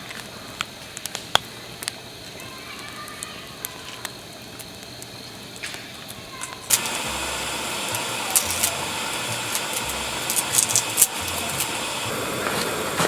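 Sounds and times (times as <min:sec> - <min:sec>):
food sizzling on a pan: 0:01.8 - 0:13.0
spitting fat pops: 0:06.4 - 0:13.0.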